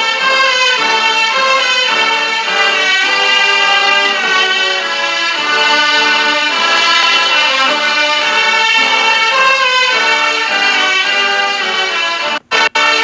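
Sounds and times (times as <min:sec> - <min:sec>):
orchestral music with violins: 0:00.0 - 0:13.0.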